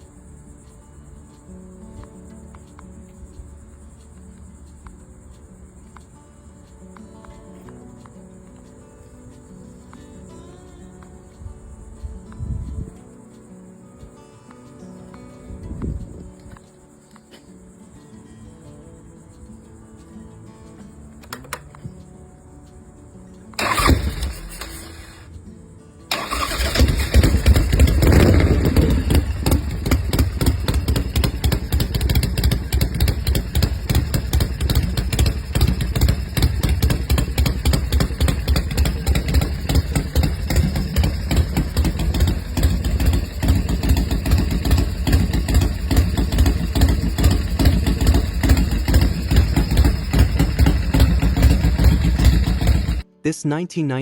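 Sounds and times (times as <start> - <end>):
motorcycle engine revving and idling: 23.6 - 25.3, 26.1 - 53.0.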